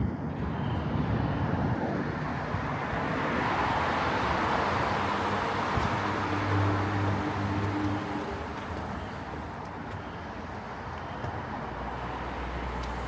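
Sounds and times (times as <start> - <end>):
vehicle passing with tyre noise: 0.1 - 13.0.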